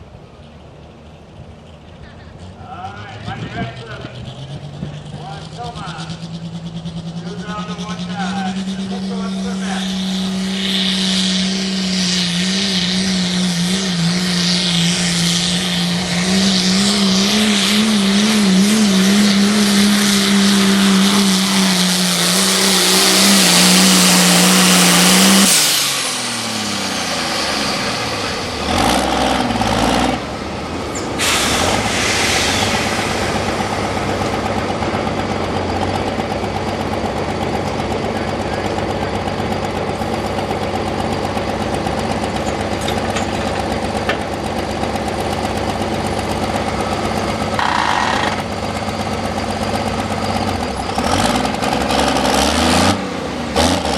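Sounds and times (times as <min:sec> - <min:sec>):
engine running under heavy load: 0:00.0 - 0:53.9
loud high hiss: 0:09.0 - 0:29.7, 0:30.5 - 0:35.2.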